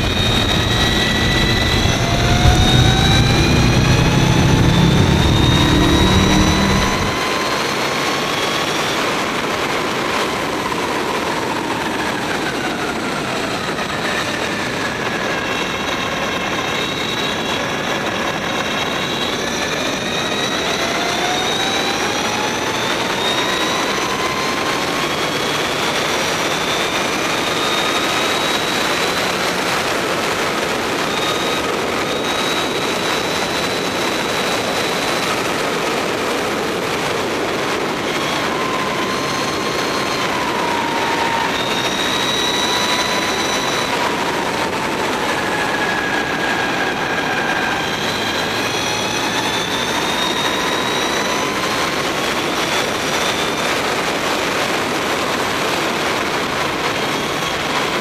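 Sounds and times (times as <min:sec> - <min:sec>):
electric motor whine: 0:00.0 - 0:07.5
wind noise: 0:00.0 - 0:07.5.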